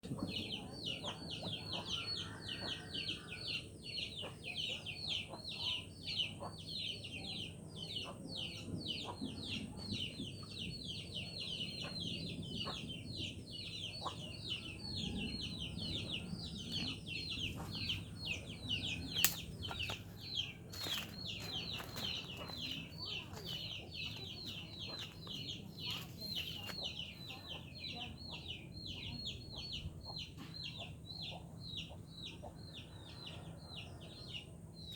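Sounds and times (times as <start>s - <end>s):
chickens clucking: 14.0s - 34.0s.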